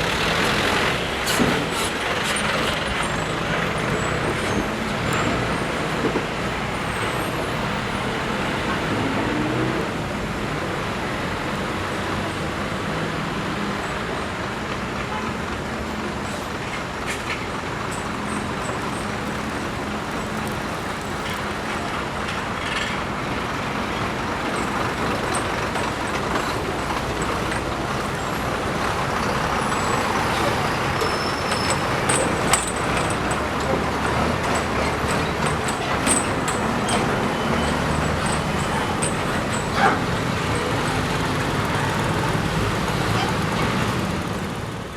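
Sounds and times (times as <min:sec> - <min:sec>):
heavy road traffic: 0:00.0 - 0:44.9.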